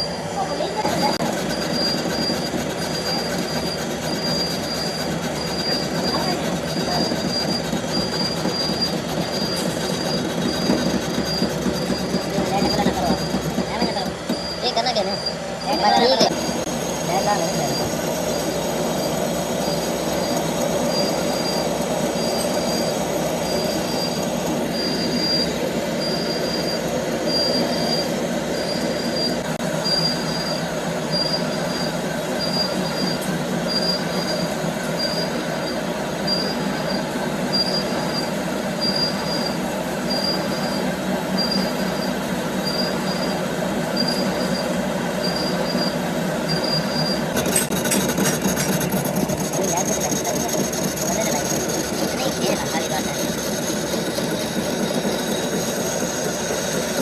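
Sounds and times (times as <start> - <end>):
factory machinery running: 0.0 - 57.0.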